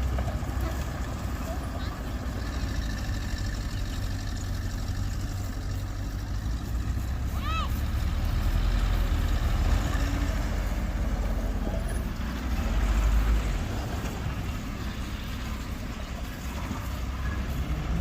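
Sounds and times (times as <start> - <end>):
diesel engine low rumble: 0.0 - 18.0.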